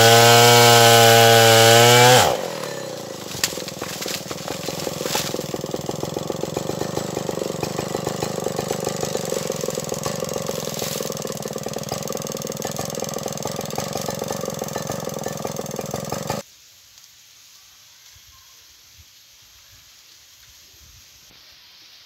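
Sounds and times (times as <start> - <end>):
chainsaw engine running: 0.0 - 16.4.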